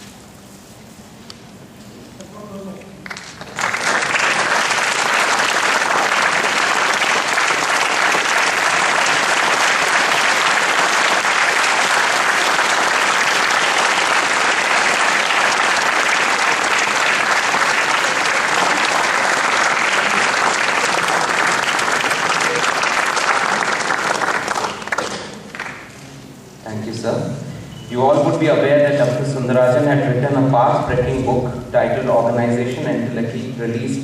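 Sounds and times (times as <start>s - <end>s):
audience applauding: 3.0s - 26.0s.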